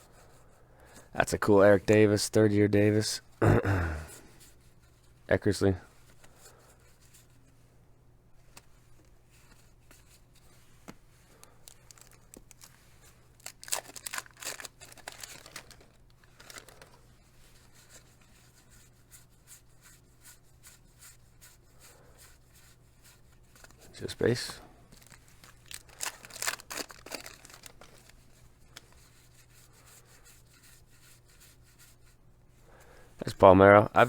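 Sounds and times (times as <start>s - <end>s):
wax paper crinkling and tearing: 11.3s - 17.2s, 23.0s - 29.0s.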